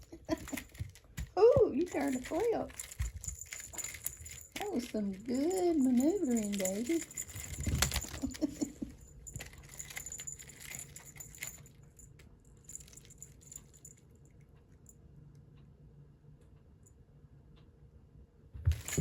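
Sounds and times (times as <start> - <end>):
cat toy jingling and clicking: 0.0 - 14.1, 18.7 - 19.0.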